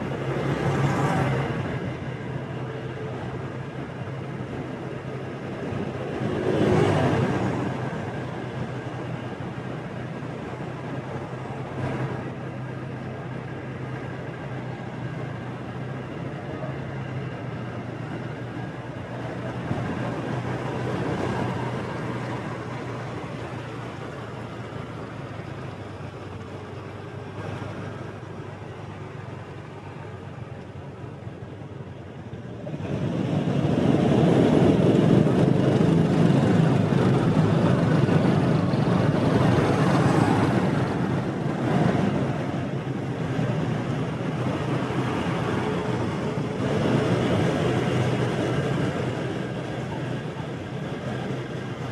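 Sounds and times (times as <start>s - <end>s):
road and traffic noise: 0.0s - 51.9s.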